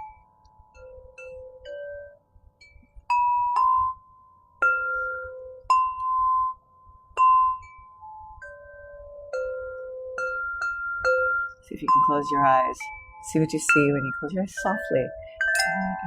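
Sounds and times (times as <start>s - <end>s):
crystal harp notes: 11.9s - 16.0s.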